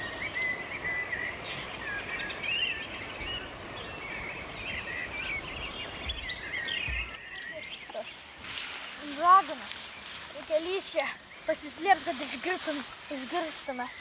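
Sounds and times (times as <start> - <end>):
birds singing and chirping: 0.0 - 14.0
steady outdoor hiss: 0.0 - 14.0.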